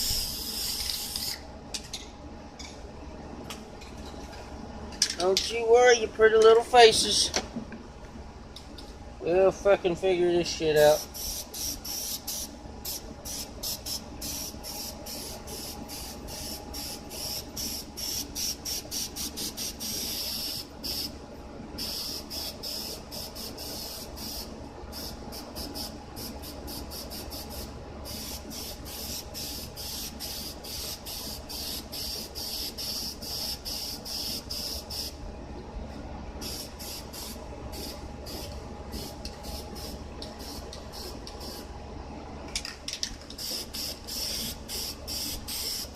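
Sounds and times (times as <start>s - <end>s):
spray paint can hissing: 0.0s - 1.4s, 10.9s - 21.1s, 21.8s - 35.2s, 36.4s - 41.6s, 43.4s - 45.9s.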